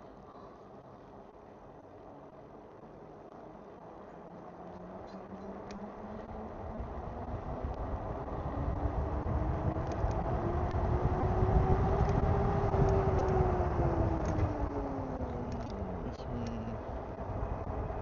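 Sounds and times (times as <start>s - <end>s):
motor hum: 1.1s - 18.0s.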